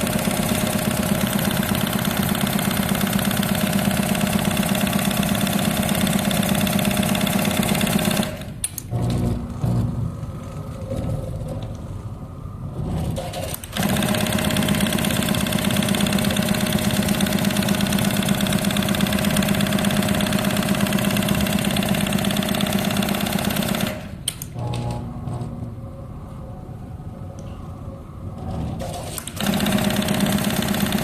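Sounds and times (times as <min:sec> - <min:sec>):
sewing machine stitching fast: 0:00.0 - 0:08.5, 0:13.2 - 0:24.1, 0:28.8 - 0:31.0
quiet mechanical movements: 0:08.5 - 0:13.7, 0:24.2 - 0:29.3.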